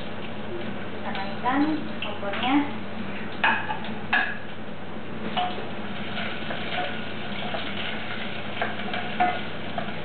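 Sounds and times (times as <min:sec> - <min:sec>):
shallots and garlic sizzling: 0:05.4 - 0:10.0.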